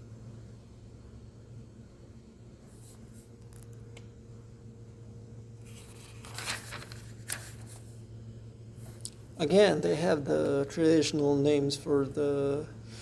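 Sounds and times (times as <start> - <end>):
low steady hum: 0.0 - 13.0
pages rustling and turning: 5.6 - 8.0.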